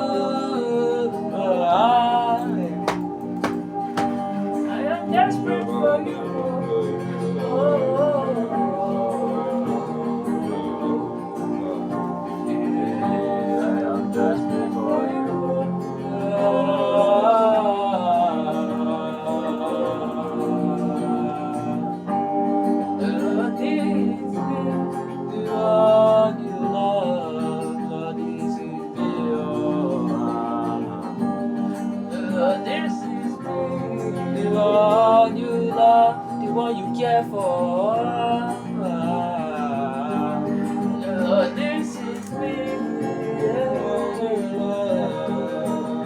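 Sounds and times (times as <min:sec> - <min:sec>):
guitar: 0:00.0 - 0:46.0
keyboard pad: 0:00.0 - 0:46.0.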